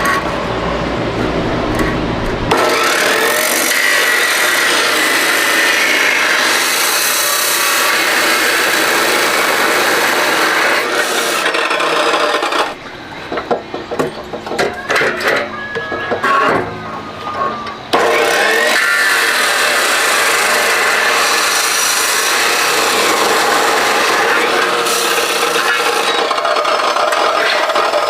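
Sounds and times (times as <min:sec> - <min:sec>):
power tool grinding: 0:01.2 - 0:12.8, 0:17.9 - 0:28.0.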